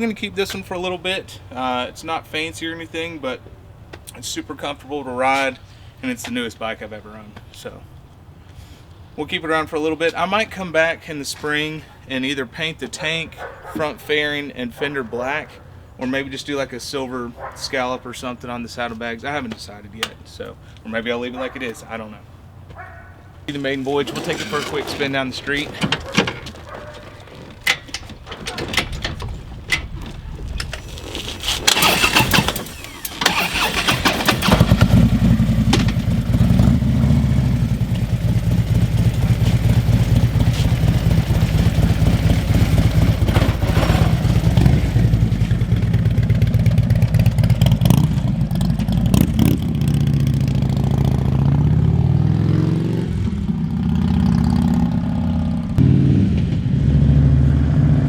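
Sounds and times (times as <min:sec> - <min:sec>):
motorcycle engine running: 0:31.8 - 0:55.8.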